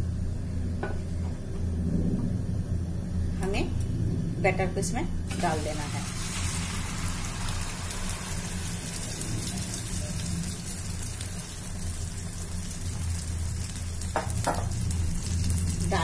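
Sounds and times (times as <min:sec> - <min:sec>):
steady low hum: 0:00.0 - 0:16.0
batter sizzling in hot oil: 0:05.3 - 0:16.0.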